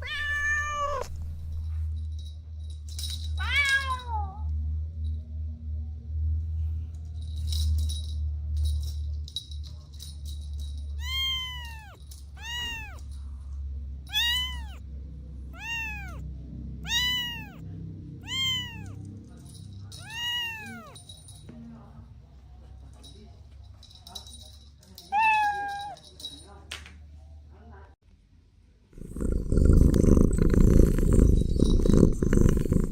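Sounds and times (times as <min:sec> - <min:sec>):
kitten meowing: 0:00.0 - 0:01.3, 0:11.0 - 0:13.0, 0:14.1 - 0:14.8, 0:15.6 - 0:16.2, 0:16.8 - 0:17.6, 0:18.2 - 0:19.0, 0:20.0 - 0:21.0
low steady hum: 0:00.0 - 0:03.4.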